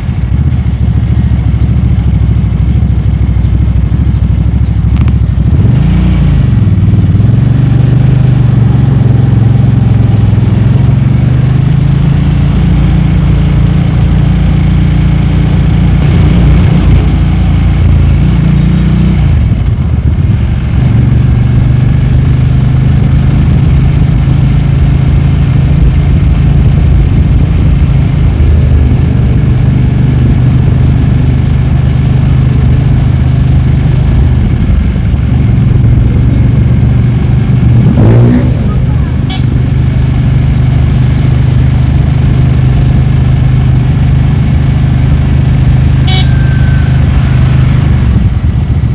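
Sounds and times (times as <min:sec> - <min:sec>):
motorcycle engine running: 0:00.0 - 0:48.9
wind and road noise: 0:00.0 - 0:48.9.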